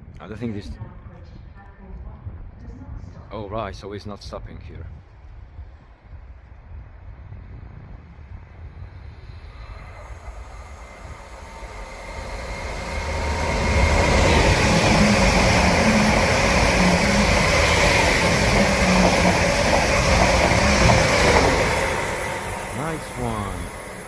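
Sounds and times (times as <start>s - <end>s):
train passing with rumble: 4.9s - 24.0s.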